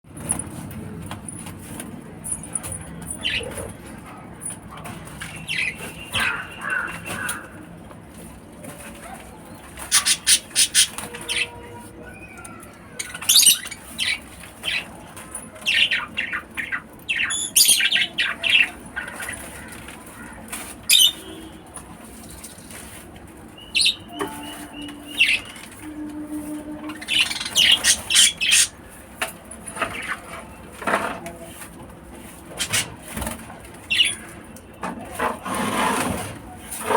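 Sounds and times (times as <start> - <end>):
lovebirds chirping shrilly: 5.3 - 7.5, 9.8 - 15.0, 15.6 - 19.7, 20.8 - 21.5, 23.6 - 25.8, 27.0 - 28.8.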